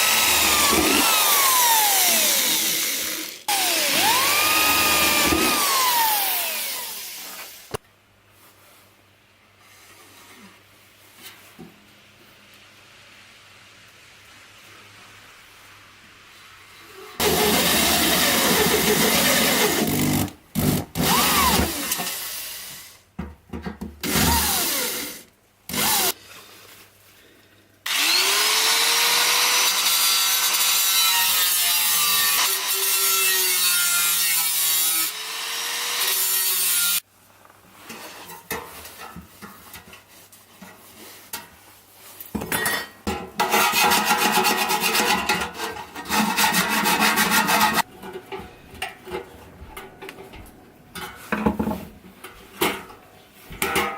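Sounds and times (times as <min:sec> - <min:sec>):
sawing or filing metal: 0:00.0 - 0:07.3, 0:17.2 - 0:20.1, 0:43.4 - 0:47.9
power tool running: 0:00.0 - 0:07.4, 0:17.2 - 0:22.2, 0:27.9 - 0:31.2.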